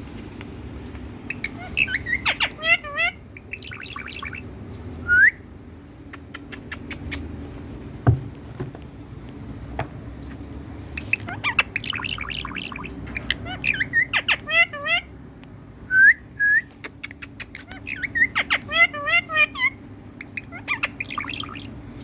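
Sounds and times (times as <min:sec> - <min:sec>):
parrot chirping and squawking: 0:01.2 - 0:05.0, 0:06.0 - 0:07.5, 0:10.2 - 0:15.2, 0:16.8 - 0:22.0
dull thump: 0:08.0 - 0:08.9.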